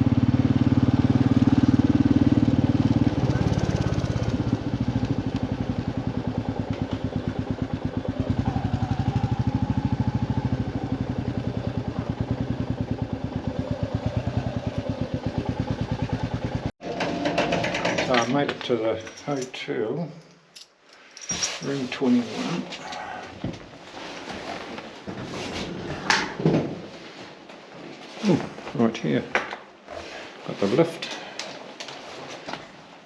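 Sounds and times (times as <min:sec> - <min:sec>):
motorcycle engine running: 0:00.0 - 0:16.7.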